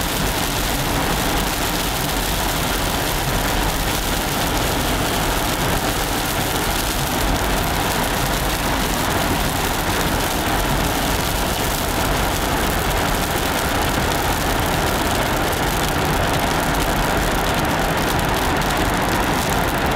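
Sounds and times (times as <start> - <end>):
hail hitting car: 0.0 - 19.9
road noise inside car: 0.0 - 19.9.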